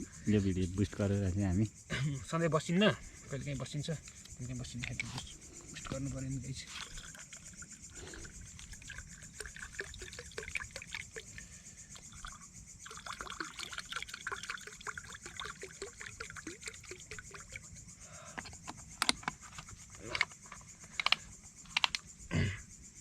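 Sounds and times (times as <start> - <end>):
insect chirring: 0.0 - 23.0
liquid pouring and trickling: 5.8 - 17.9
sharp clicks: 18.4 - 20.3, 20.9 - 22.1.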